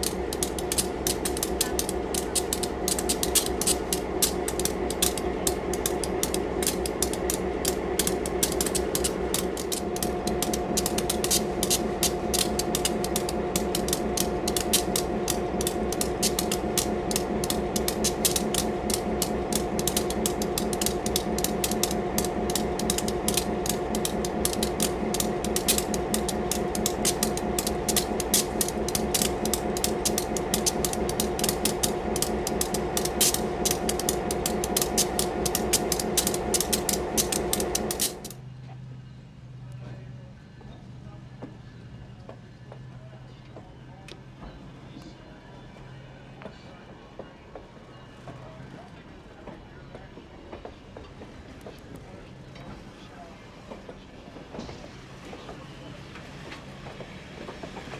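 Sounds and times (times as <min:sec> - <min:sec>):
high steady tone: 0:00.0 - 0:38.4
mechanical rattle and clatter: 0:00.0 - 0:38.4
locomotive engine hum: 0:00.0 - 0:57.9.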